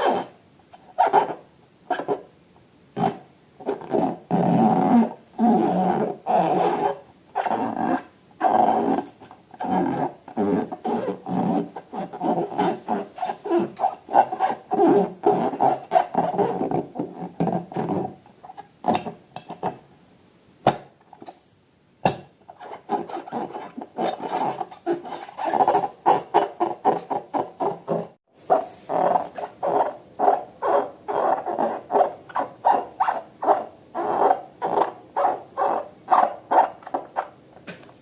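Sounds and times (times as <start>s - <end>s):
rapid rasping rubbing strokes: 22.6s - 34.9s.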